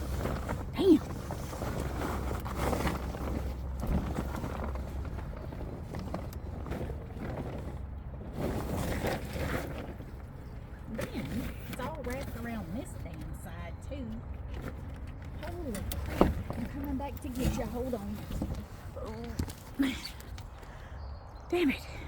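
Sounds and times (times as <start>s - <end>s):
plastic tarp rustling and crinkling: 0.0s - 12.8s.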